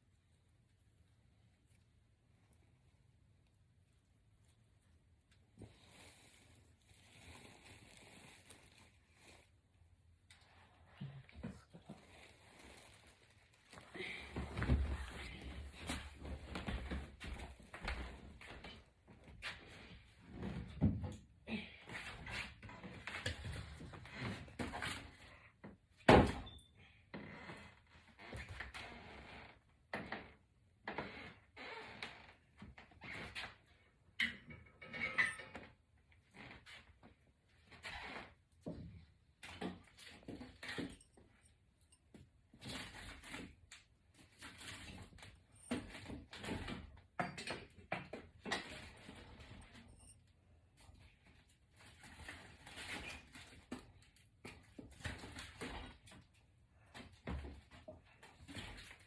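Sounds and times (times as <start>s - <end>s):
braids rustling and scraping: 4.3s - 20.6s, 48.5s - 59.0s
hair rustling being unravelled: 5.7s - 9.6s, 11.7s - 14.0s.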